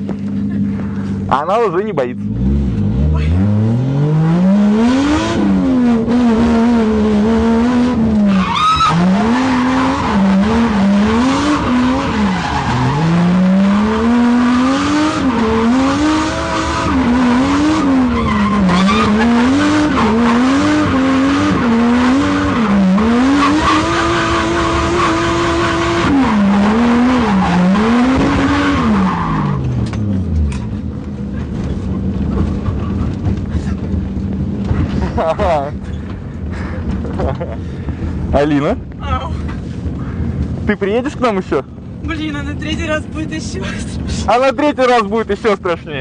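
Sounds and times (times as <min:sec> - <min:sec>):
race car engine revving: 0:01.7 - 0:37.5
tyres squealing: 0:08.3 - 0:13.2, 0:18.0 - 0:20.5.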